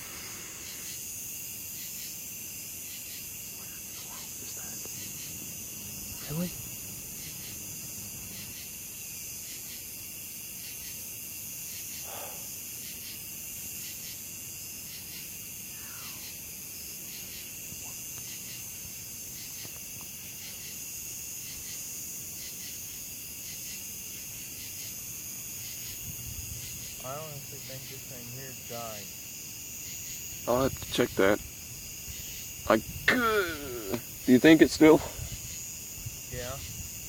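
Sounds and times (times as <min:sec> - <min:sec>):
crickets and insects trilling: 0:00.0 - 0:37.0.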